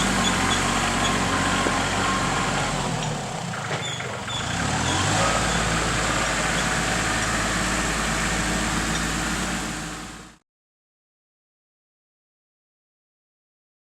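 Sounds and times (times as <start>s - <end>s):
tractor engine running: 0.0s - 10.4s.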